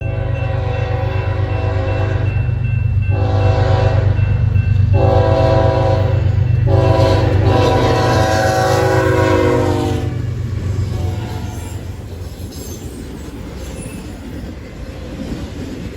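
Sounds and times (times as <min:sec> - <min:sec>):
locomotive air horn blasts: 0:00.0 - 0:02.3, 0:03.1 - 0:04.2, 0:04.9 - 0:12.0
freight train rumble: 0:00.0 - 0:15.9.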